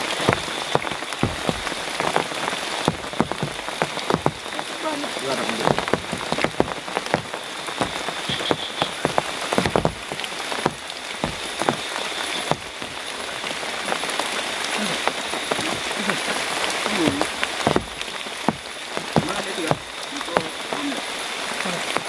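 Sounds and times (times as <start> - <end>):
heavy rain falling: 0.0 - 22.0
sharp raindrops striking nearby: 0.0 - 22.0.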